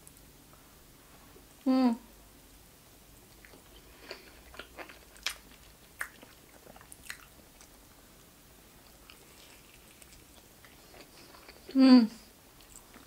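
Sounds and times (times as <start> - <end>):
faint chewing: 3.2 - 11.8, 12.5 - 13.0.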